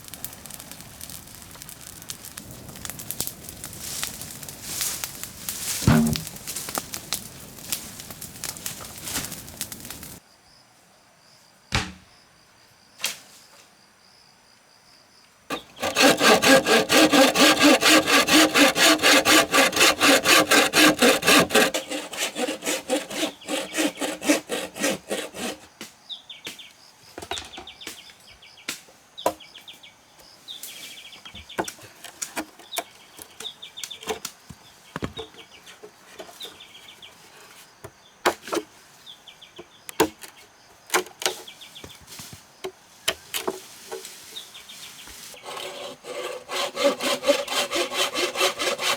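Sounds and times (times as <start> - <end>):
sharp knocks: 5.8 - 6.4, 11.7 - 12.1
saw cutting bamboo: 5.8 - 6.8, 15.5 - 25.7, 45.4 - 48.9.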